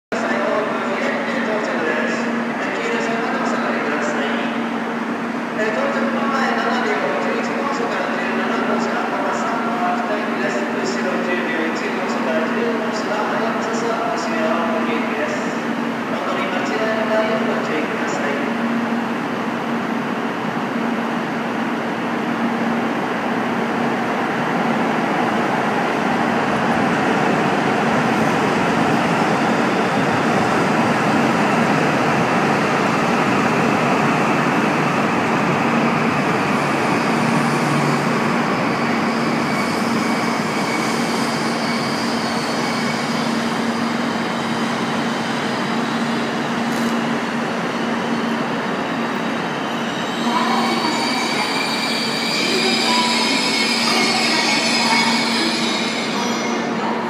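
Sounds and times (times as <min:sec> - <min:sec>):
train running hum: 0:00.2 - 0:57.0
train brakes squealing: 0:36.6 - 0:57.0.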